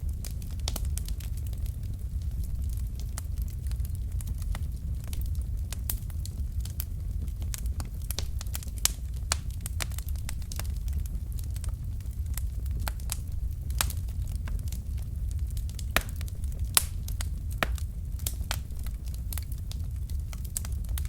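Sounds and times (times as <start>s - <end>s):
low rumble of flames: 0.0s - 21.0s
wood fire crackling: 0.0s - 21.0s
sharp pops and snaps: 7.6s - 11.0s, 15.6s - 19.5s.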